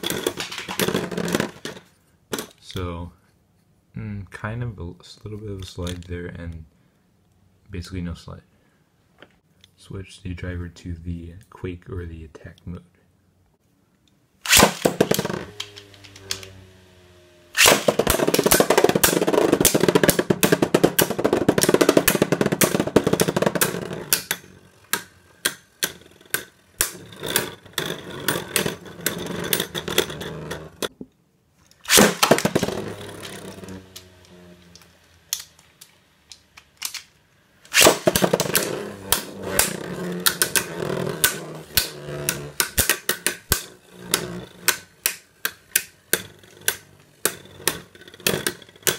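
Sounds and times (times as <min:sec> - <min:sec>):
tops clashing and rattling: 0:00.0 - 0:02.6, 0:14.5 - 0:31.0, 0:31.8 - 0:37.1, 0:37.7 - 0:48.9
spinning top launch: 0:14.4 - 0:30.9, 0:31.8 - 0:35.8, 0:37.6 - 0:48.9
spinning tops humming: 0:14.4 - 0:30.9, 0:31.8 - 0:35.8, 0:37.7 - 0:48.9.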